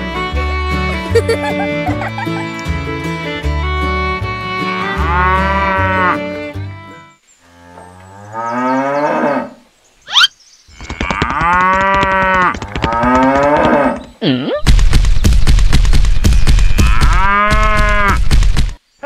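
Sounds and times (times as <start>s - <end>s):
cattle mooing: 4.8s - 6.4s, 16.2s - 18.2s.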